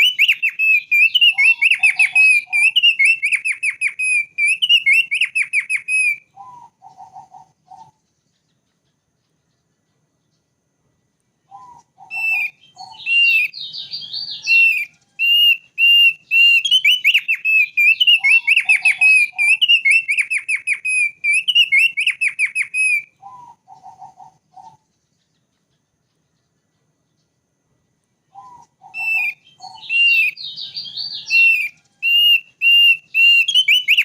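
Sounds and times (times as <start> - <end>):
bird singing high notes: 0.0 - 7.1, 28.4 - 34.0
lower bird notes: 0.0 - 34.0.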